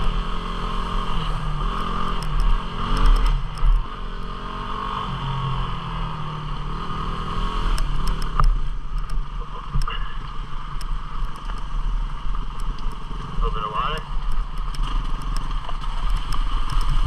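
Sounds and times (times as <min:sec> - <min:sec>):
motorcycle engine running: 0:00.0 - 0:17.0
sharp knocks and clatters: 0:14.1 - 0:17.0.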